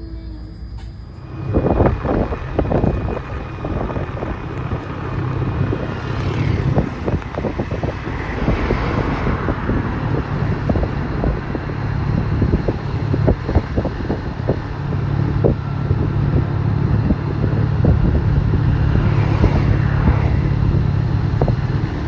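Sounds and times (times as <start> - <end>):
vehicle engine hum: 0.0 - 22.0
wind buffeting microphone: 1.1 - 22.0.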